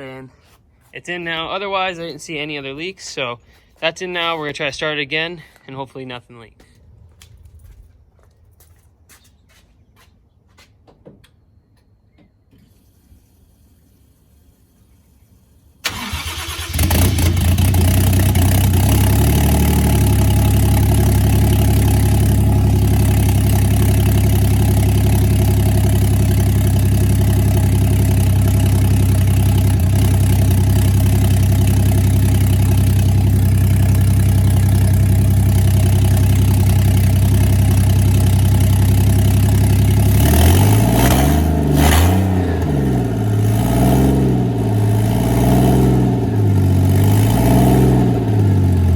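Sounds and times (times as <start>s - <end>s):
engine cranking on starter: 15.8s - 35.6s
engine idling: 15.8s - 47.4s, 48.0s - 48.9s
engine revving: 15.9s - 48.9s.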